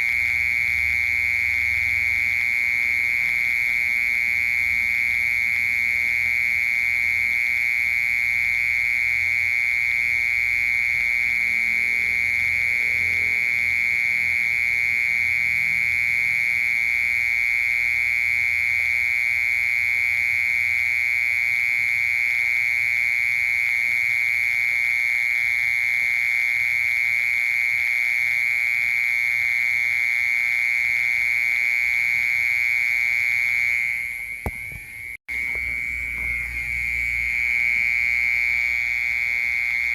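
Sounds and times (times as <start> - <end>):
mole cricket singing: 0.0 - 39.9.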